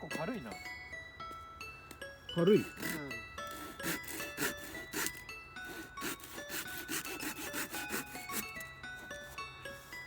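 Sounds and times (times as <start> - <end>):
light background music: 0.0 - 10.0
hand saw cutting wood: 2.5 - 8.6.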